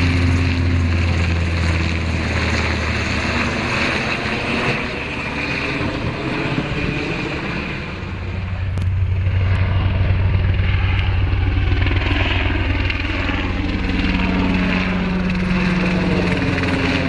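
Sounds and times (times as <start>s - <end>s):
aircraft engine roar: 0.0s - 17.0s
low hum: 0.0s - 17.0s.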